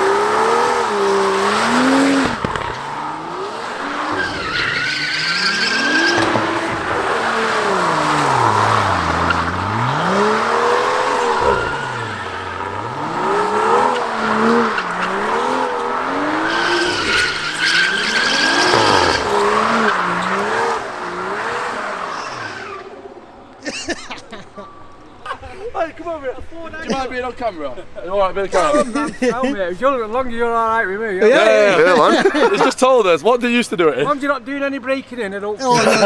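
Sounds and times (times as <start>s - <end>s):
tyres squealing: 0.0s - 23.0s, 35.6s - 36.0s
car engine revving: 0.0s - 23.5s.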